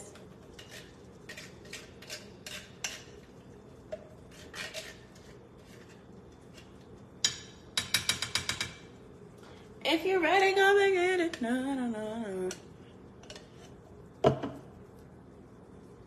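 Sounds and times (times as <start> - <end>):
utensil scraping a pot: 0.4 - 3.3, 4.2 - 6.8.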